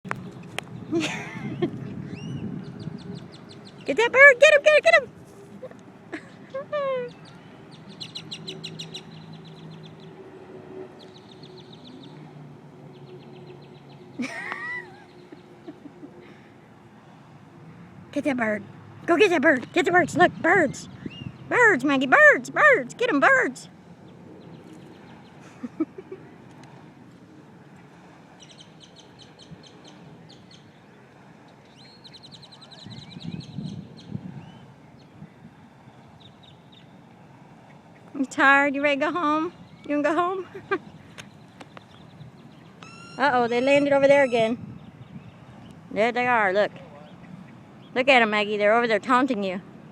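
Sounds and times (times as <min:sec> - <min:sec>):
birds chattering: 0:05.5 - 0:16.5, 0:27.6 - 0:48.2
rising whistle: 0:42.8 - 0:43.9
bird call bending in pitch: 0:42.8 - 0:44.5.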